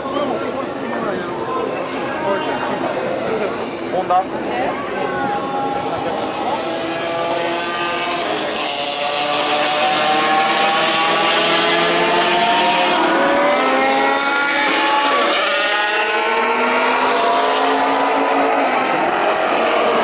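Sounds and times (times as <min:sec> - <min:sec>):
rotary race car engine revving: 0:05.8 - 0:20.0.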